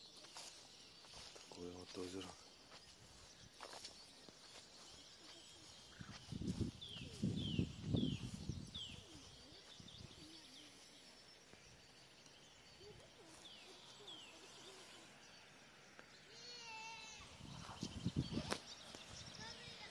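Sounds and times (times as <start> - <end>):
bird calling: 0.0 - 11.6.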